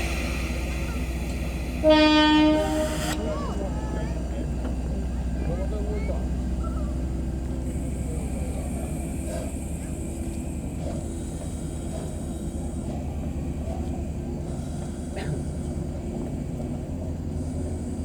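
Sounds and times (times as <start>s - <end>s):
high hiss: 0.0s - 3.5s
rail vehicle rumbling: 0.0s - 18.0s.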